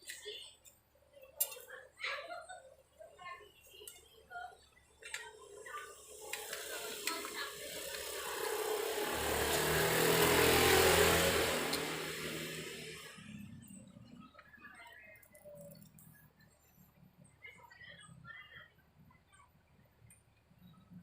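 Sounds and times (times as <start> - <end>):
vehicle passing by: 6.4 - 13.8.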